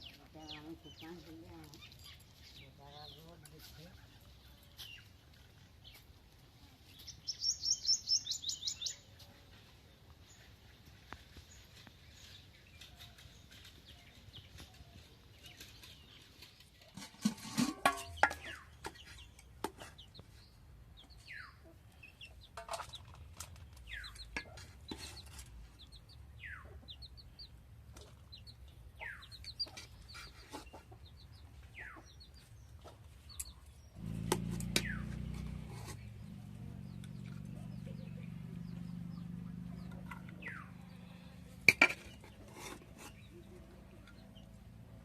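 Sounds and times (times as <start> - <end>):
chickens clucking: 10.4 - 45.0.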